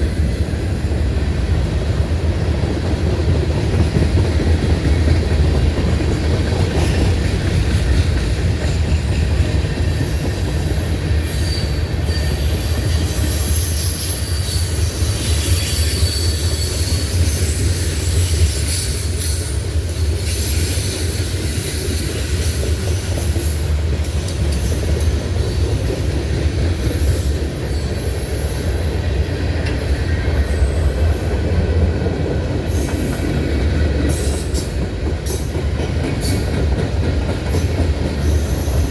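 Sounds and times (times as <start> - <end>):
freight train rumbling on rails: 0.0 - 38.9
wheels squealing: 10.0 - 19.5.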